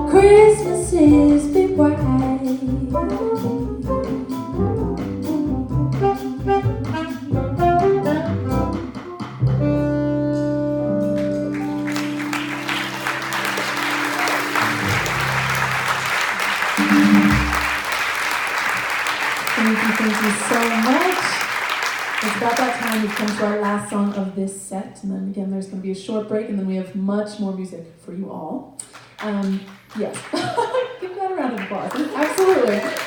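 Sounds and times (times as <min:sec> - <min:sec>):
bass: 0:00.0 - 0:17.8
piano: 0:00.0 - 0:19.7
busy jazz drumming: 0:00.0 - 0:24.4, 0:31.6 - 0:33.0
alto saxophone: 0:01.8 - 0:17.9
trumpet: 0:02.0 - 0:22.9
audience applause: 0:11.2 - 0:24.2, 0:31.6 - 0:33.0.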